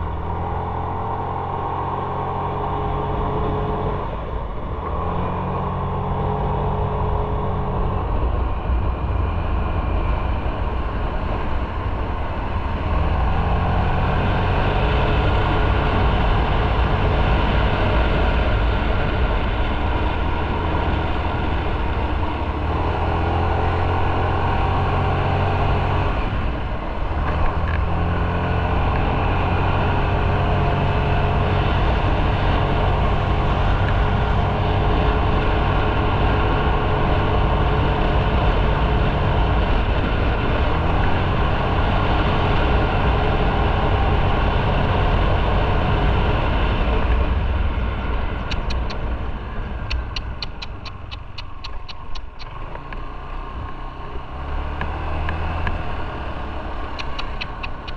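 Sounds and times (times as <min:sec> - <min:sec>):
motorcycle engine running: 0:00.0 - 0:54.4, 0:55.3 - 0:57.9
wind and road noise: 0:00.0 - 0:57.9
high ticking: 0:48.5 - 0:49.0, 0:49.8 - 0:52.5, 0:56.9 - 0:57.9.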